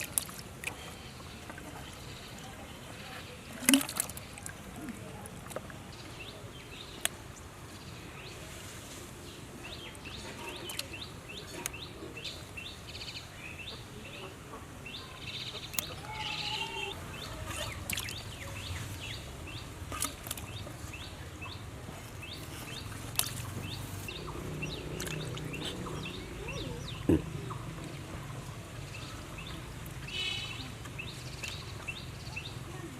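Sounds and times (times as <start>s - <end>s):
birds chirping: 9.2s - 32.9s.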